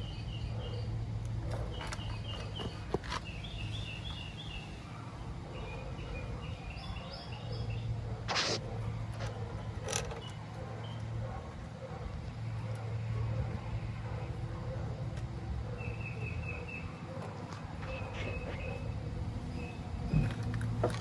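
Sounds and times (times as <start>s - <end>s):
small birds chirping: 0.0s - 20.6s
steady low hum: 0.0s - 21.0s
brief scrape: 8.3s - 8.6s
sharp clicks: 8.3s - 8.6s.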